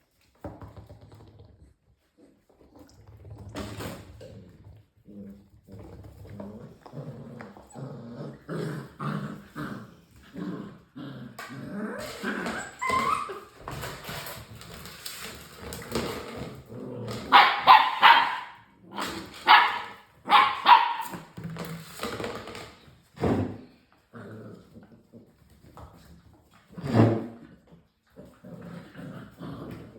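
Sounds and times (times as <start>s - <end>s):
puppies yipping and barking: 12.4s - 13.5s.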